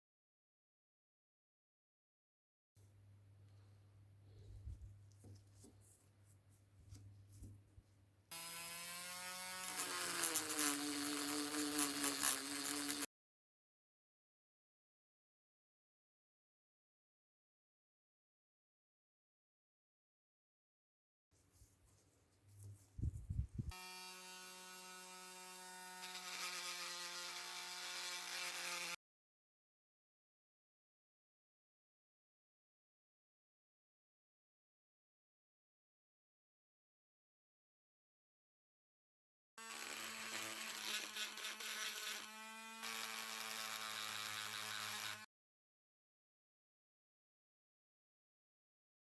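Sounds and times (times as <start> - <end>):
small power tool buzzing: 8.3 - 13.1, 23.7 - 29.0, 39.6 - 45.3.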